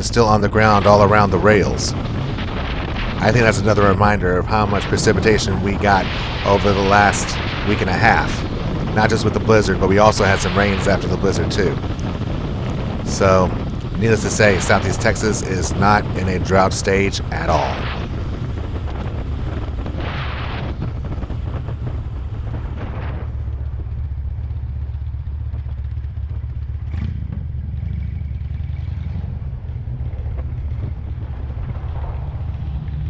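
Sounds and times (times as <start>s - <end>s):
wind noise: 0.0s - 19.1s.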